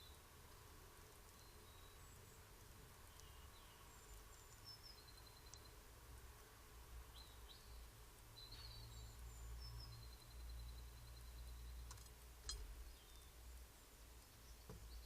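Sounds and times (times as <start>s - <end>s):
faint distant birdsong: 0.0s - 15.0s
low background hiss: 0.0s - 15.0s.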